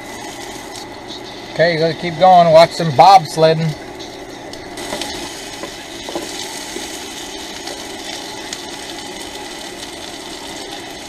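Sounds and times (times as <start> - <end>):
food sizzling in a pan: 0.0 - 1.5, 4.6 - 11.0.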